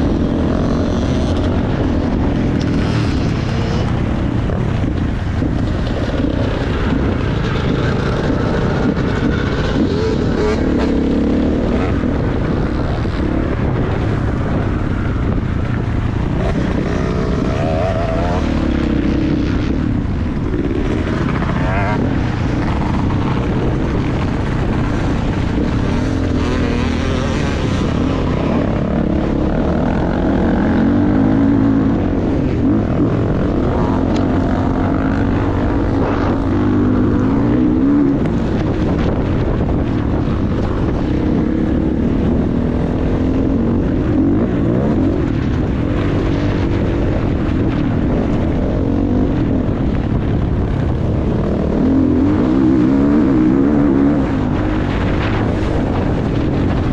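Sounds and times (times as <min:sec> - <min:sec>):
motocross bike engine revving: 0:05.1 - 0:15.0, 0:16.2 - 0:49.8.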